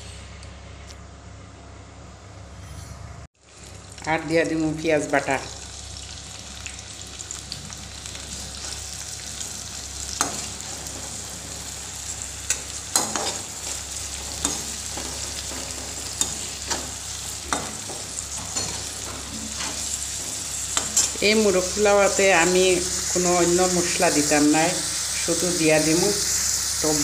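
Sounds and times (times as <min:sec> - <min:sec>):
onion paste sizzling in hot oil: 0:03.4 - 0:27.0
spoon scraping and knocking pan: 0:12.5 - 0:21.2.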